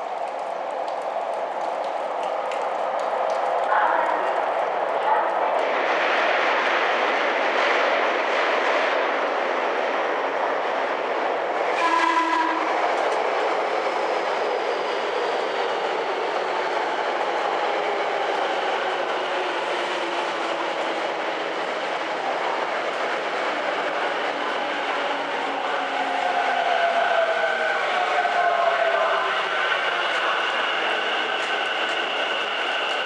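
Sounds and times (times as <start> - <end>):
train wheels rumbling on rail: 0.0 - 33.0
train horn blast: 11.8 - 12.7.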